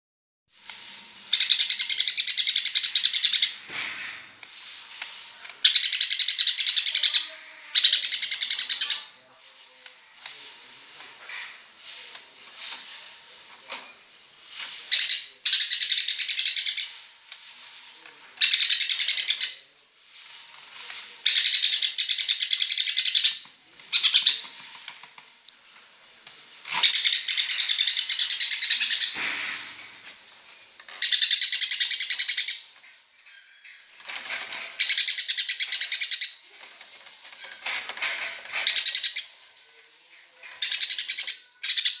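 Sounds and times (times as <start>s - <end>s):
bird chirping bursts: 1.3s - 3.7s, 5.6s - 9.1s, 14.9s - 17.1s, 18.4s - 19.7s, 21.2s - 24.6s, 26.7s - 29.8s, 30.9s - 32.8s.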